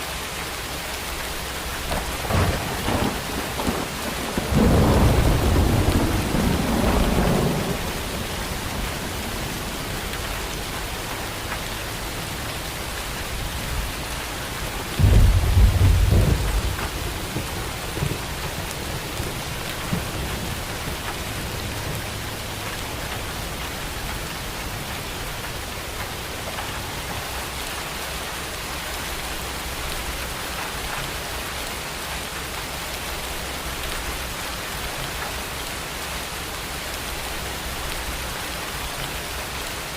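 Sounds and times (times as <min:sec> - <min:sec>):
steady rain hissing: 0:00.0 - 0:39.9
thunder rumbling: 0:01.4 - 0:27.7.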